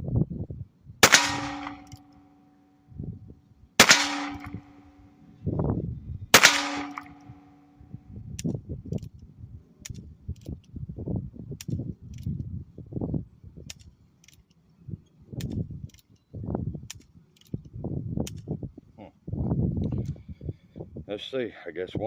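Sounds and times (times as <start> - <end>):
metallic ringing: 1.0 - 2.6, 3.8 - 5.1, 6.4 - 7.8
revolver shots: 3.8 - 4.9.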